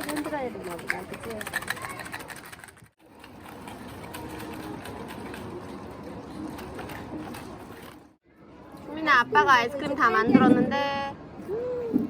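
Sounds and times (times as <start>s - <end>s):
ice and salt rattling in container: 0.0s - 8.1s.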